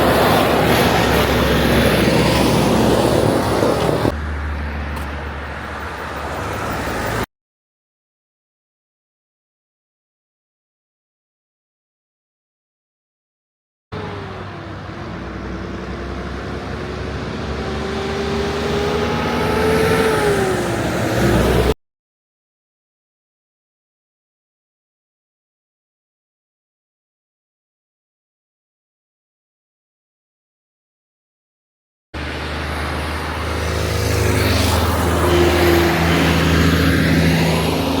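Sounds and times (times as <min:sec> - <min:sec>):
truck diesel engine running: 0:00.0 - 0:04.4, 0:14.0 - 0:18.0
road noise: 0:00.0 - 0:07.3, 0:13.9 - 0:21.8, 0:32.2 - 0:38.0
truck driving past: 0:00.0 - 0:07.3, 0:14.0 - 0:21.8, 0:32.2 - 0:38.0.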